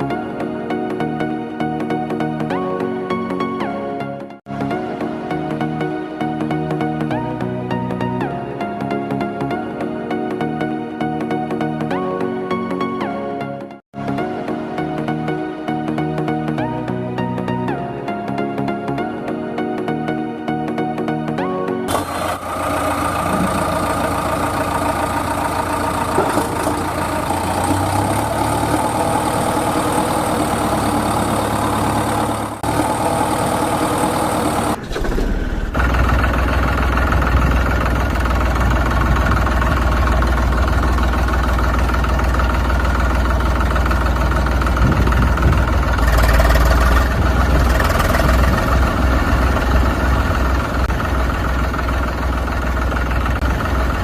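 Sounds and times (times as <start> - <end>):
deeper louder engine running: 21.9 - 54.0
engine running: 21.9 - 54.0.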